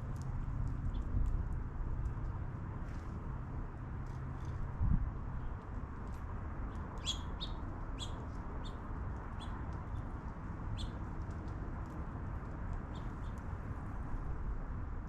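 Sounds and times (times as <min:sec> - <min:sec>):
small birds chirping: 0:06.7 - 0:10.1, 0:10.7 - 0:11.0, 0:12.9 - 0:13.4.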